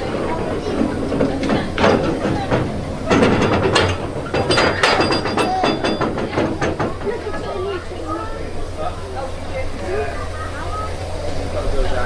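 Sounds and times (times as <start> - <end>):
metallic clanks and clinks: 0.0 - 7.8.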